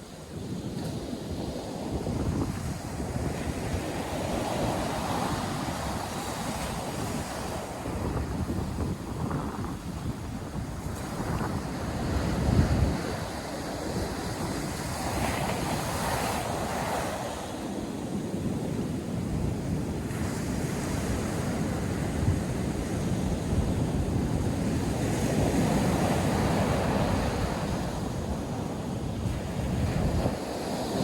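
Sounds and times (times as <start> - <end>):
surf breaking ashore: 0.0 - 31.0
wind buffeting microphone: 0.0 - 31.0.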